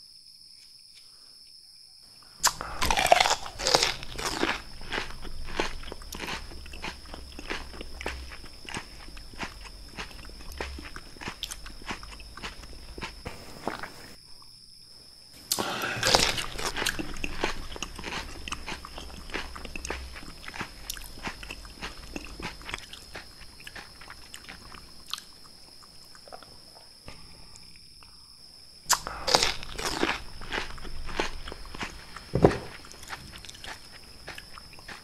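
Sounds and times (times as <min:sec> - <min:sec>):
crisp crunch biting pepper: 0:02.4 - 0:14.1, 0:15.5 - 0:25.3, 0:28.9 - 0:35.0
wet crackling chewing: 0:02.4 - 0:14.2, 0:15.4 - 0:26.5, 0:28.9 - 0:35.0.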